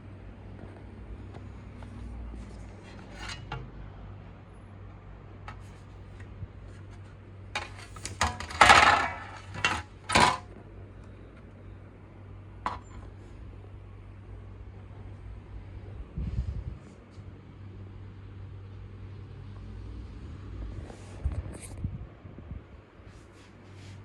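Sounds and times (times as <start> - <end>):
scrape on work surface: 2.4 - 3.5, 23.1 - 24.0.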